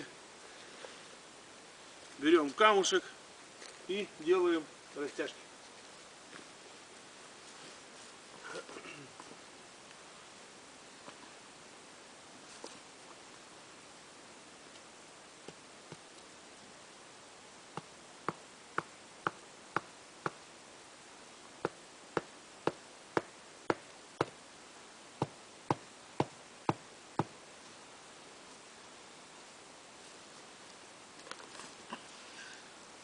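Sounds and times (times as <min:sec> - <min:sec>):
stone knocking tent peg: 0:21.6 - 0:24.4.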